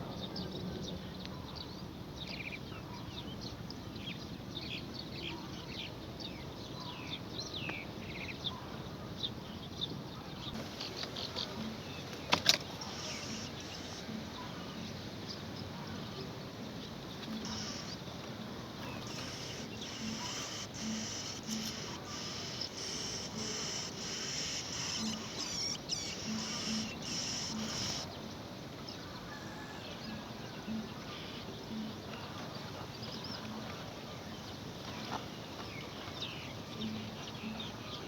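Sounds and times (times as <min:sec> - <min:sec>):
birds chirping: 0:10.4 - 0:29.6.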